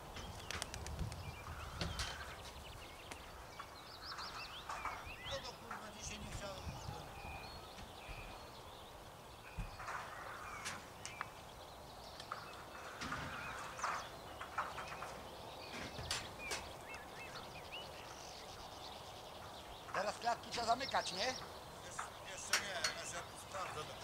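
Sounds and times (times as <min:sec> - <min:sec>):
sharp clicks: 0:00.3 - 0:01.3.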